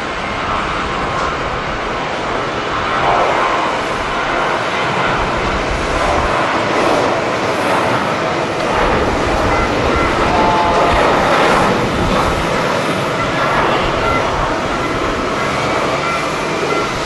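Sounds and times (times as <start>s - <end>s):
jet engines whining: 0.0s - 17.0s
wind buffeting microphone: 0.0s - 17.0s.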